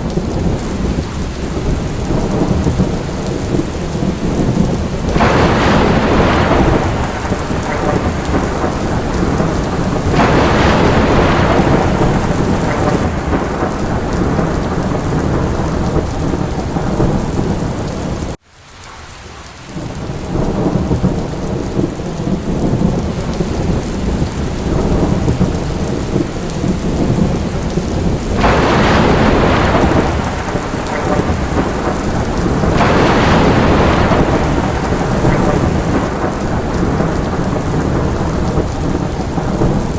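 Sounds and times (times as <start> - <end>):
low rolling thunder: 0.0 - 18.4, 19.6 - 39.9
steady rain: 0.0 - 39.9.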